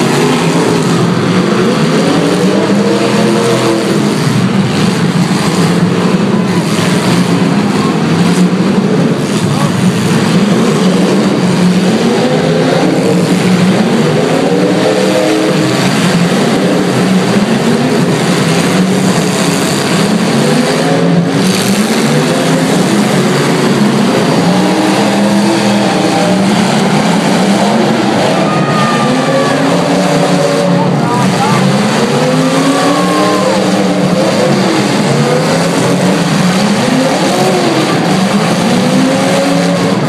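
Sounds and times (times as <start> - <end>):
car engines revving: 0.0 - 40.0.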